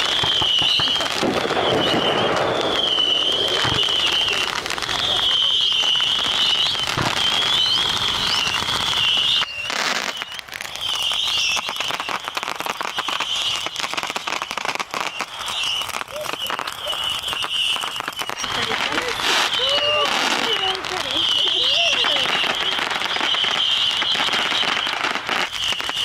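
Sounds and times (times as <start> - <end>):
wavering high whistle: 0.0 - 13.7, 15.0 - 18.4
bonfire crackling and popping: 0.0 - 26.0.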